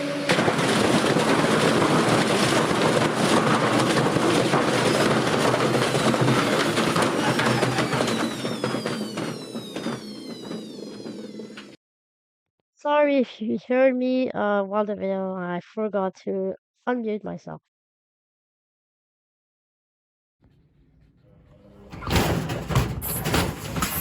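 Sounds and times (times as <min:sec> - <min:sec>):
washing machine clattering and banging: 0:00.0 - 0:11.8, 0:21.8 - 0:24.0
whine falling in pitch: 0:06.7 - 0:11.8.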